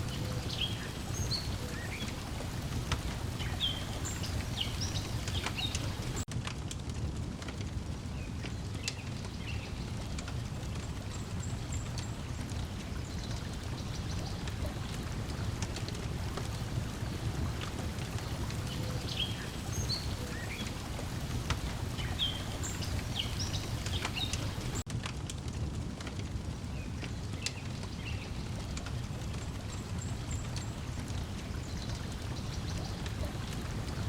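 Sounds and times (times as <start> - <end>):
breeze: 0.0 - 6.3, 8.1 - 24.8
water lapping: 0.0 - 6.3, 10.6 - 24.8, 28.9 - 34.0
wood fire crackling: 0.0 - 34.0.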